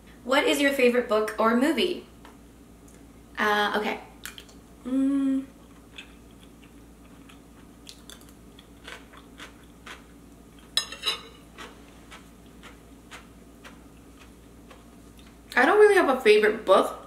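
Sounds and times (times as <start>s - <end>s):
person humming mm: 4.8s - 5.6s
wet chewing clicks: 5.7s - 10.6s.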